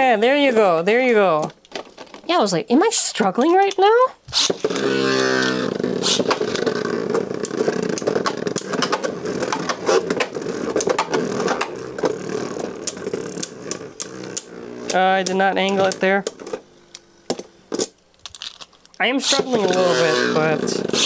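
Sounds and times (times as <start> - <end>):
ripcord launcher whir: 4.3 - 21.0
spinning tops humming: 4.4 - 17.8.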